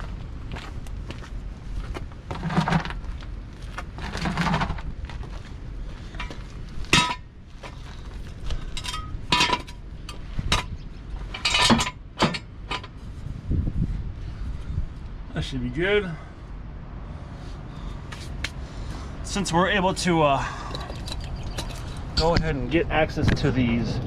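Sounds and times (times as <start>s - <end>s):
metal scraping and rattling: 2.3s - 3.1s, 3.7s - 5.4s, 6.1s - 13.2s, 20.5s - 22.4s
metal clanking and clinking: 6.2s - 7.3s, 8.7s - 13.0s, 20.5s - 22.4s.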